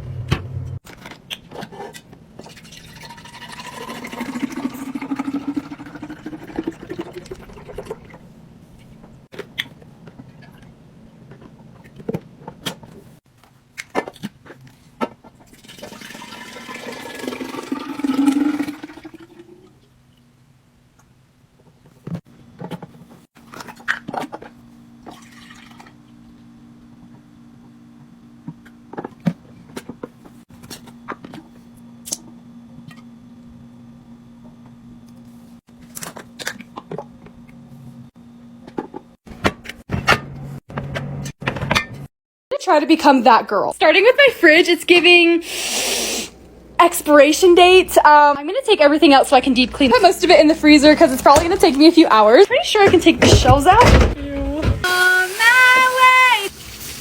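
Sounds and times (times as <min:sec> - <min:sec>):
liquid pouring into container: 0:02.4 - 0:08.2, 0:15.5 - 0:19.7, 0:25.1 - 0:26.0.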